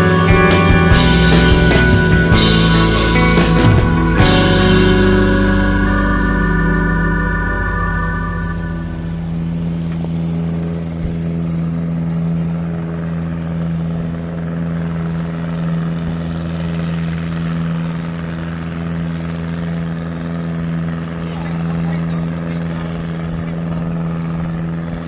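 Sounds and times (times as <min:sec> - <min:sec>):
rushing noise: 0:00.0 - 0:10.1
engine droning steadily: 0:00.0 - 0:25.0.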